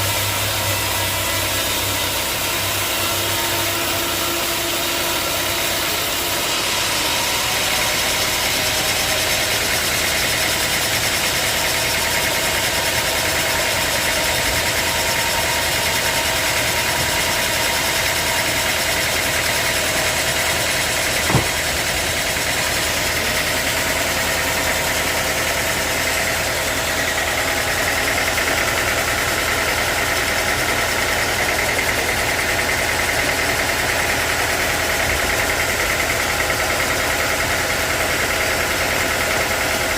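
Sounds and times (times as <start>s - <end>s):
sawmill engine running: 0.0s - 39.9s
sharp knock: 21.2s - 21.9s.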